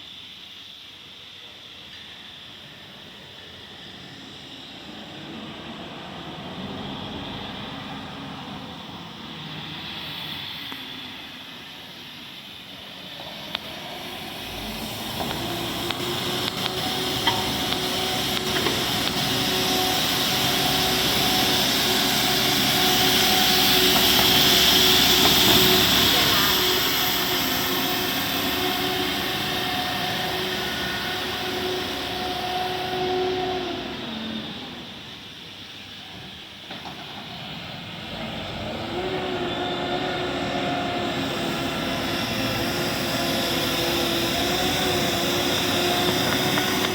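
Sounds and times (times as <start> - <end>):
truck engine running: 13.7 - 32.5.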